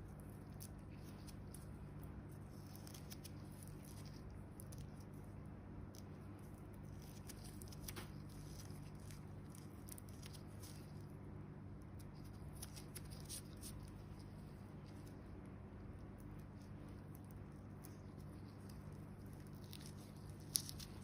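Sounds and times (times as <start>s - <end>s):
dry skin crackling as peeled: 0.0s - 21.0s.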